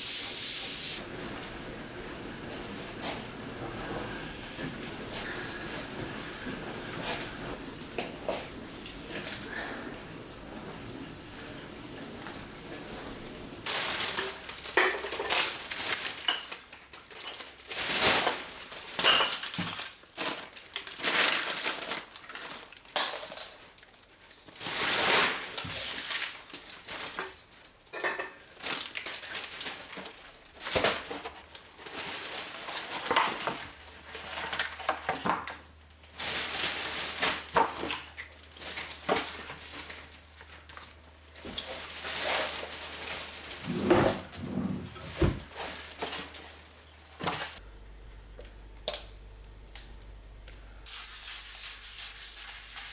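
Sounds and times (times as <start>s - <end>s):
dishes and bottles clattering: 1.0s - 16.6s, 19.0s - 19.8s, 27.9s - 28.5s.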